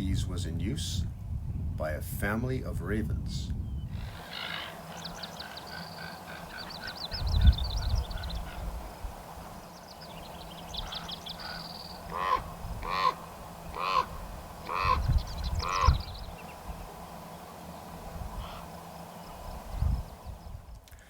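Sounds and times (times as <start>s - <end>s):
ravens calling harshly: 4.0s - 20.4s
thin high twittering: 4.0s - 20.7s.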